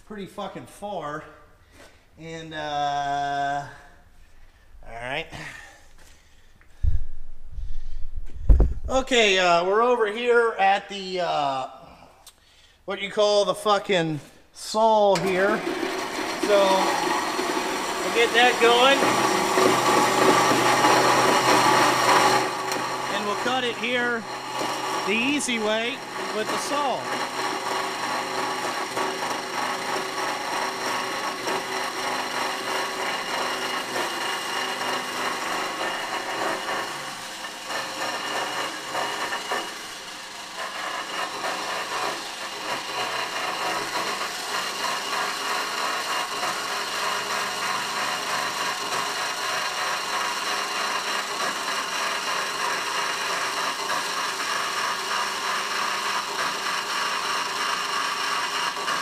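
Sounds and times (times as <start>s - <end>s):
power saw cutting steel pipe: 14.8s - 59.0s.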